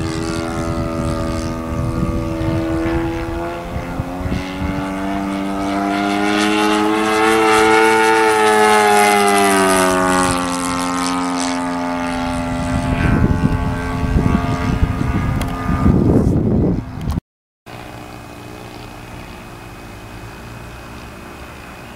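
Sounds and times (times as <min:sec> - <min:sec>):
irregular low rumbling: 0:00.0 - 0:17.2
model plane engine passing by: 0:00.0 - 0:21.9.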